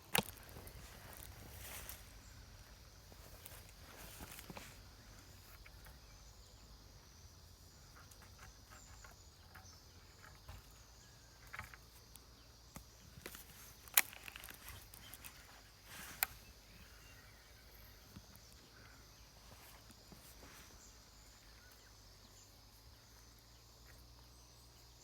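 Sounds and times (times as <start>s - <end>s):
faint insect hiss: 0.0s - 25.0s
light rustles and ticks: 0.1s - 6.1s, 7.7s - 17.0s.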